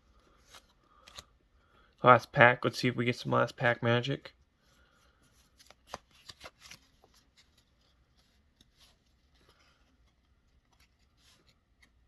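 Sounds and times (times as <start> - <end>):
trading cards rustling and clicking: 0.2 - 1.4, 5.3 - 12.0.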